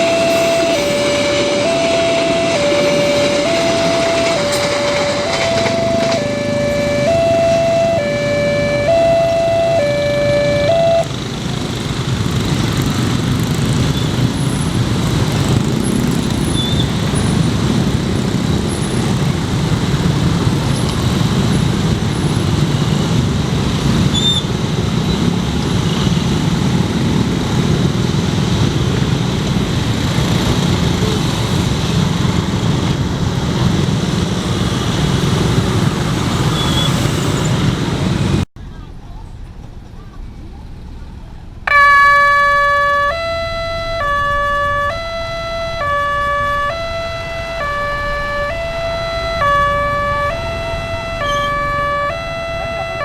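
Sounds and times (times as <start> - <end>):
electronic crossing warning melody: 0.0 - 16.2, 41.7 - 53.0
train wheels rumbling on rail: 0.0 - 41.6.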